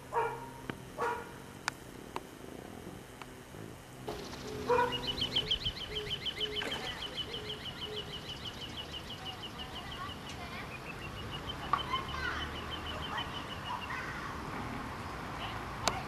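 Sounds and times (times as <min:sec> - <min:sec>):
lower bird call: 0:04.2 - 0:14.4.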